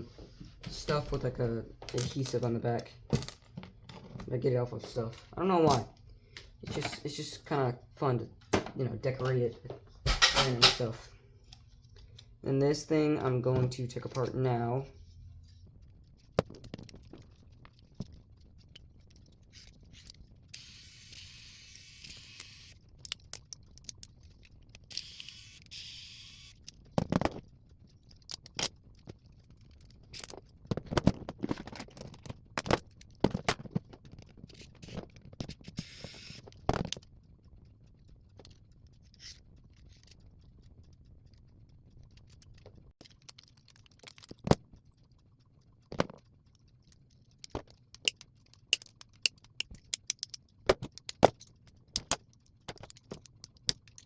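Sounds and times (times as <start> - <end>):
radio parts clicking and scraping: 8.3 - 12.4, 13.6 - 37.6, 38.3 - 45.0, 45.8 - 54.0.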